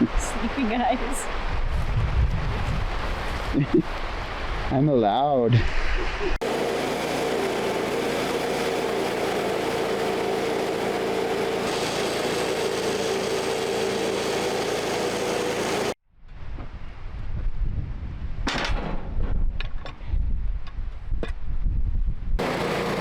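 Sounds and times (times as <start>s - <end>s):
sawmill engine running under load: 6.4s - 16.0s, 22.4s - 23.0s.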